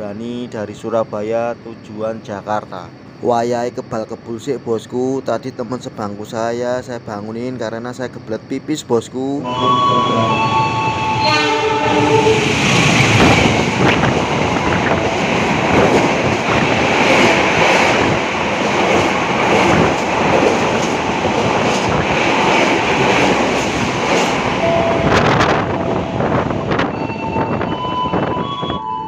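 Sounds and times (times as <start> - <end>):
train horn: 9.4 - 12.6, 24.6 - 29.0
train carriages rushing past: 9.4 - 29.0.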